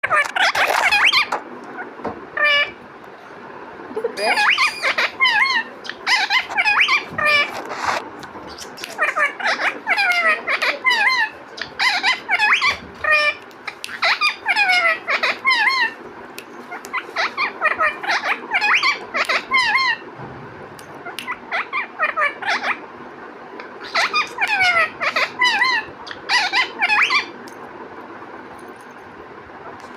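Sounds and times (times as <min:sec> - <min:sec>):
parrot squawking and whistling: 0:00.0 - 0:01.4, 0:04.2 - 0:16.0, 0:16.7 - 0:20.0, 0:21.0 - 0:22.8, 0:23.8 - 0:27.3.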